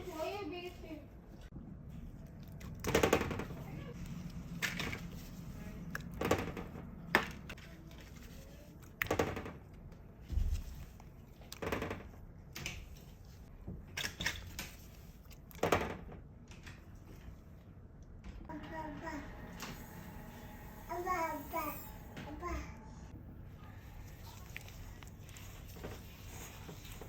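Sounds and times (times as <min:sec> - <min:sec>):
low hum: 0:18.2 - 0:26.4.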